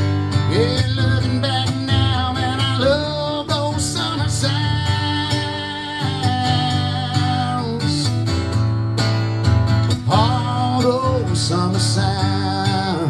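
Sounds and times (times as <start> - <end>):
country song with guitar and band: 0.0 - 13.0.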